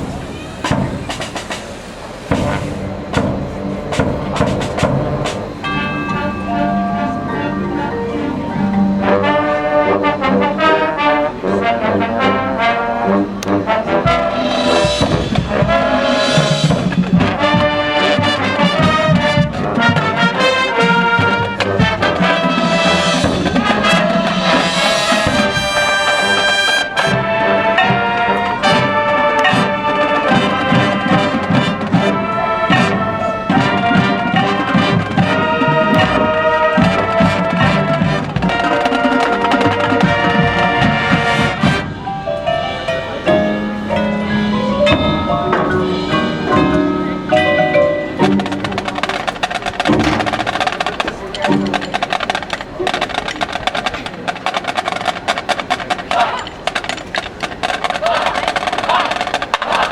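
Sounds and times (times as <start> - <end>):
drum hits: 0.0 - 1.7, 2.3 - 6.0, 14.0 - 26.4, 30.3 - 41.9, 44.6 - 55.7
brass sustained chords: 2.3 - 49.3.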